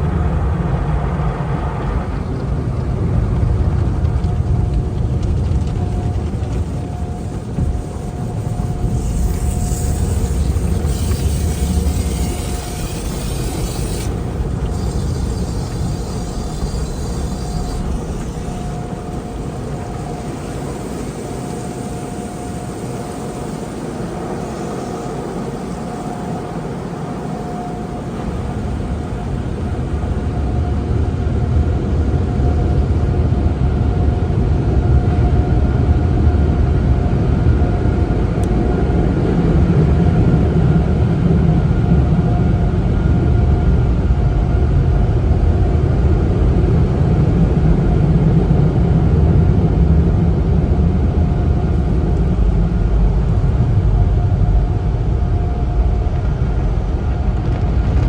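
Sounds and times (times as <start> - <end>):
car wash machinery rumbling: 0.0 - 33.9, 36.4 - 58.0
machinery whine: 0.0 - 58.0
high hiss: 6.5 - 33.2.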